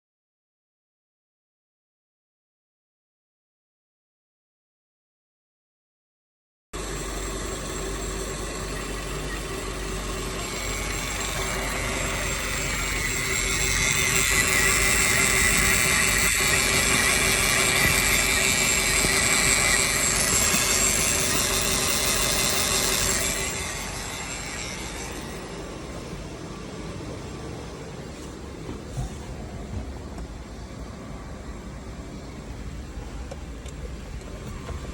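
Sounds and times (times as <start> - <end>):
car engine running: 6.8 - 25.4
hiss and high whine: 6.8 - 34.9.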